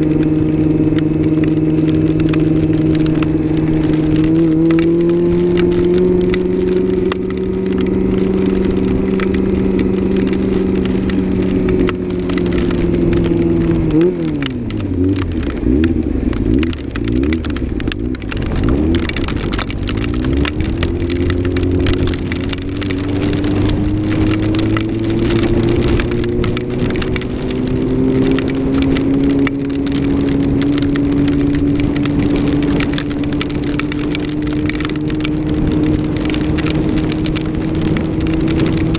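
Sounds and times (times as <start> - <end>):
motorcycle engine running: 0.0 - 38.9
small ticks and crackles: 0.0 - 38.9.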